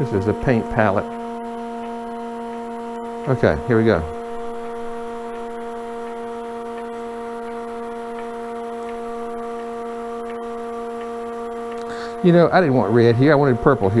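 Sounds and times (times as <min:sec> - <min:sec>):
lathe and pump electric hum: 0:00.0 - 0:14.0.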